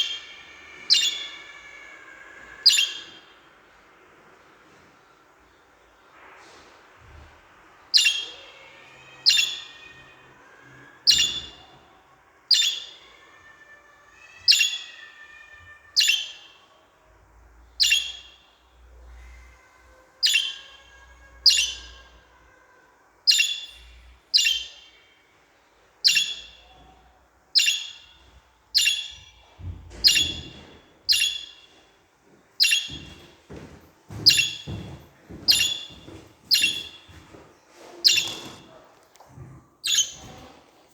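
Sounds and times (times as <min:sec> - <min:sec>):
budgerigars chirping: 0:00.9 - 0:01.4, 0:02.6 - 0:03.2, 0:07.9 - 0:08.4, 0:09.2 - 0:09.8, 0:11.1 - 0:11.6, 0:12.5 - 0:13.0, 0:14.5 - 0:15.0, 0:16.0 - 0:16.6, 0:17.8 - 0:18.5, 0:20.2 - 0:20.8, 0:21.4 - 0:22.0, 0:23.3 - 0:25.0, 0:26.0 - 0:26.8, 0:27.6 - 0:28.2, 0:28.8 - 0:29.4, 0:30.0 - 0:31.7, 0:32.6 - 0:33.2, 0:34.2 - 0:34.8, 0:35.5 - 0:37.1, 0:38.0 - 0:38.7, 0:39.8 - 0:40.3
faint bird warbling: 0:19.1 - 0:22.3, 0:27.6 - 0:31.7, 0:34.2 - 0:34.7, 0:38.0 - 0:38.8.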